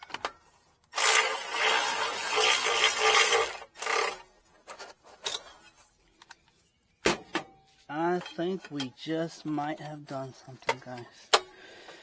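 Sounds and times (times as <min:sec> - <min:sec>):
power tool running: 0:01.0 - 0:04.2.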